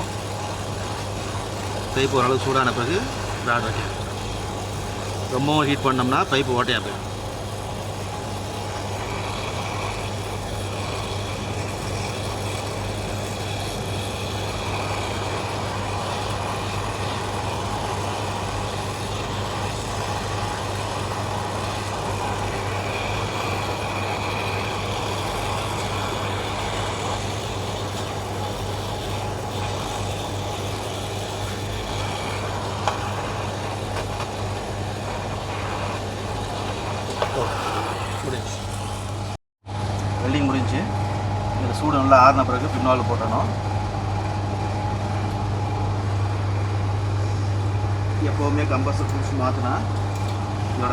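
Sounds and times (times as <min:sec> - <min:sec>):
steady low hum: 0:00.0 - 0:50.9
torch flame hissing: 0:00.0 - 0:50.9.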